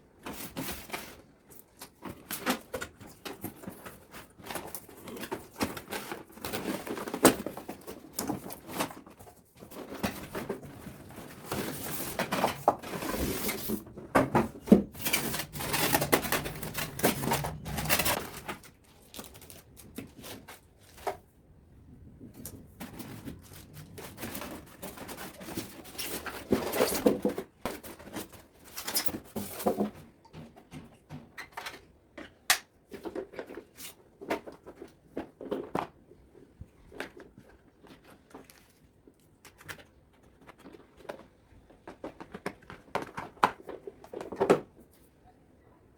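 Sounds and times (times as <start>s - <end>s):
packaging rustling: 0.2s - 21.2s.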